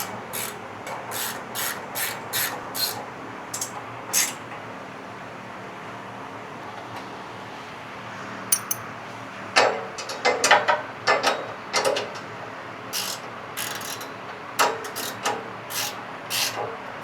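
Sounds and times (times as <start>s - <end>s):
hand wrench ratcheting: 13.0s - 14.1s.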